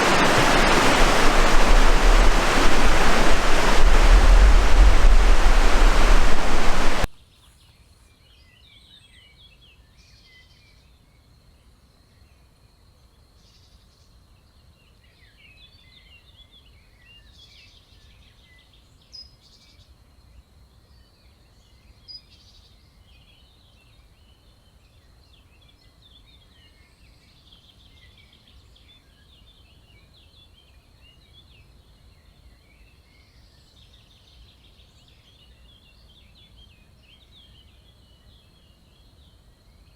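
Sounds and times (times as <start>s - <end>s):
loud rushing water: 0.0s - 7.1s.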